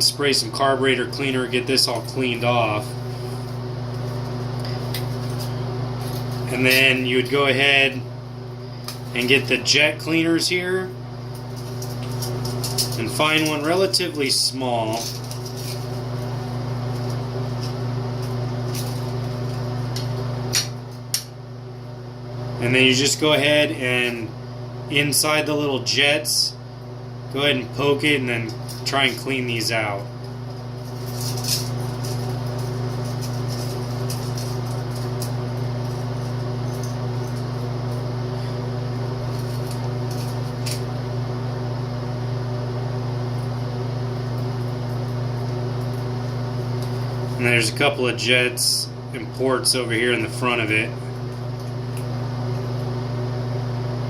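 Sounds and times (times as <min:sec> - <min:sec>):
low electrical hum: 0:00.0 - 0:54.0
metal wires clicking: 0:11.4 - 0:13.6, 0:30.8 - 0:37.5.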